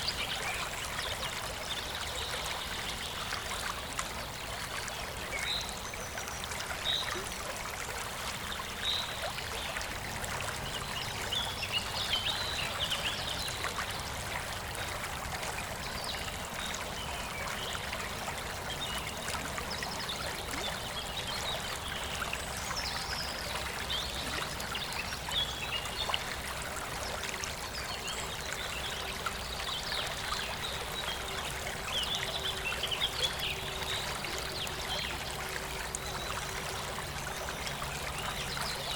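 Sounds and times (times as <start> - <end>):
stream flowing: 0.0 - 38.9
songbirds chirping: 19.8 - 38.9.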